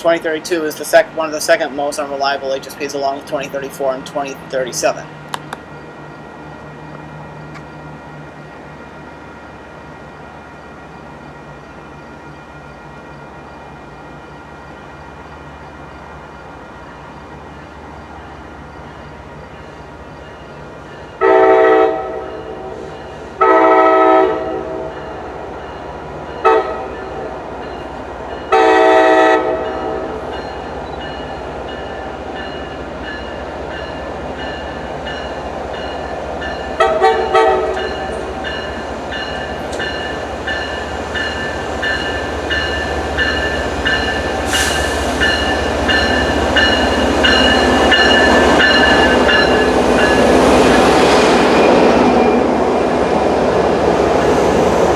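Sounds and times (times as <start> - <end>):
train approaching: 0.0 - 54.9
train horn blasts: 21.2 - 25.0, 26.4 - 27.0, 28.5 - 30.2, 36.8 - 38.2.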